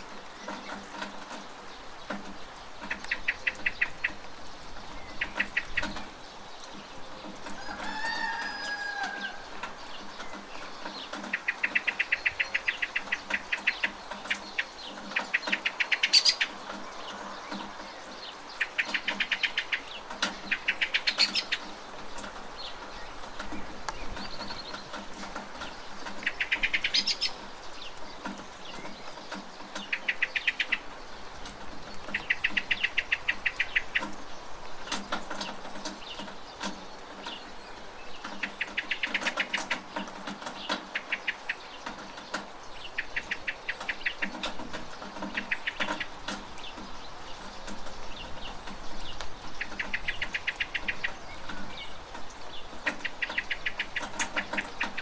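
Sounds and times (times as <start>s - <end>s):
steady rain: 0.0s - 55.0s
bird chattering calls: 2.8s - 6.2s, 7.2s - 22.0s, 22.7s - 27.5s, 28.7s - 31.2s, 32.0s - 37.5s, 38.1s - 55.0s.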